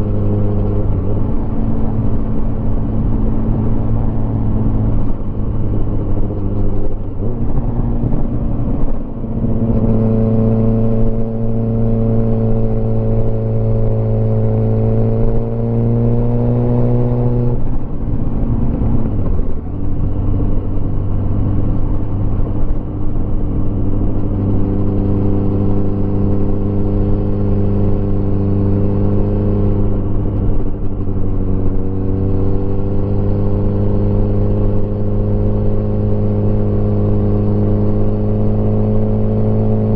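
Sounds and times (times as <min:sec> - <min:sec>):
motorcycle engine running: 0:00.0 - 0:16.4
wind and road noise: 0:00.0 - 0:39.9.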